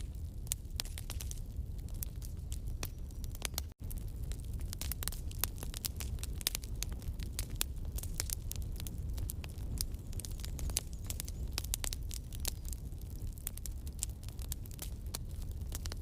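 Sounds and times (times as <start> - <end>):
campfire crackling and popping: 0.0 - 16.0
low fire rumble: 0.0 - 16.0.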